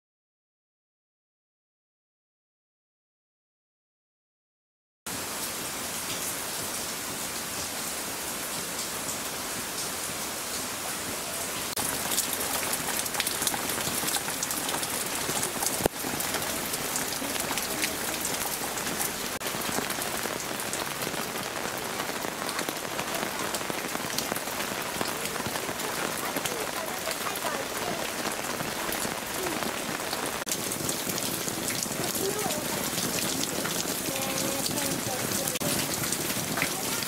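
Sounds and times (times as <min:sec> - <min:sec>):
heavy rain pouring: 0:05.1 - 0:37.0.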